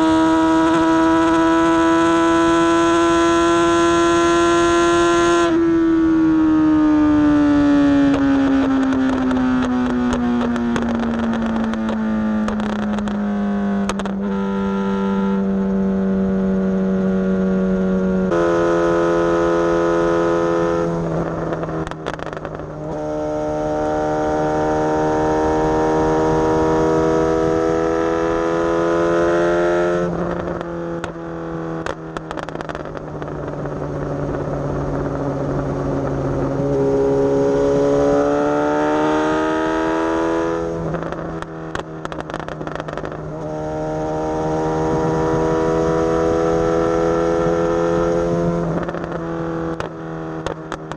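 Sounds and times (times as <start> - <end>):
motorcycle engine revving through gears: 0.0 - 50.9.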